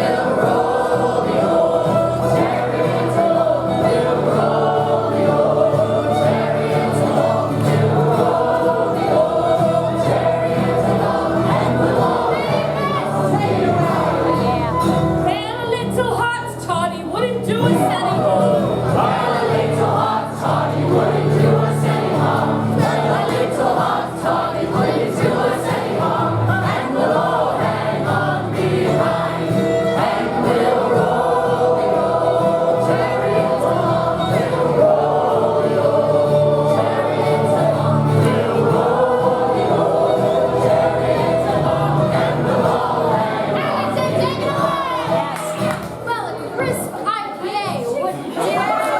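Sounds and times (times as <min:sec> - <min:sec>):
group of voices singing: 0:00.0 - 0:46.1.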